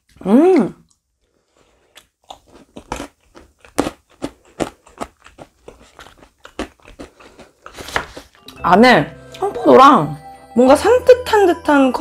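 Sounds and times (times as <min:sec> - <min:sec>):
chewing crunchy food: 0:00.8 - 0:08.4.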